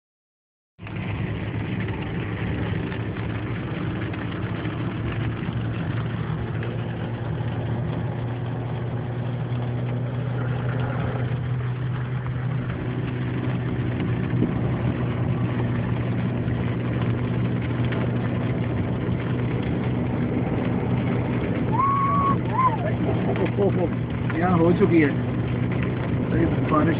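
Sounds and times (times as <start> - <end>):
car engine running: 0.8 - 26.9
hail pattering on car body: 15.7 - 26.9.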